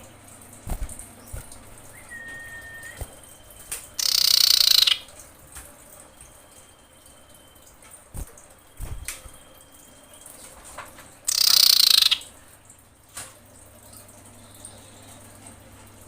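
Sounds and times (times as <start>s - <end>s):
bird buzzy trill: 0.7s - 5.1s, 11.3s - 12.3s
faint thin whistle: 1.9s - 3.1s.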